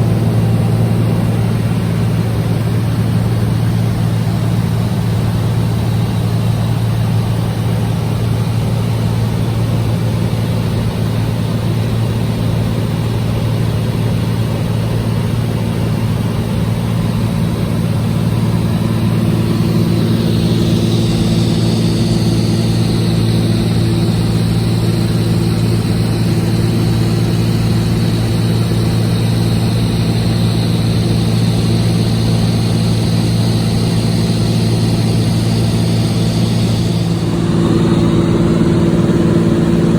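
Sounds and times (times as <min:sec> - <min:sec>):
aircraft engine droning: 0:00.0 - 0:39.9
high whine: 0:17.4 - 0:39.9.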